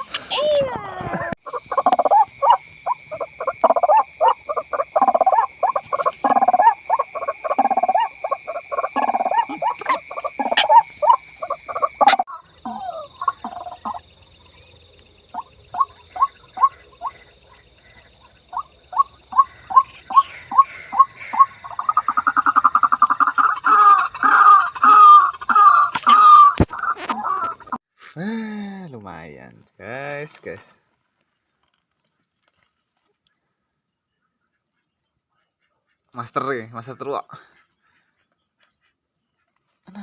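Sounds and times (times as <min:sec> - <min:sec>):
waterhen harsh croaking calls: 0:01.4 - 0:14.1, 0:15.3 - 0:27.8.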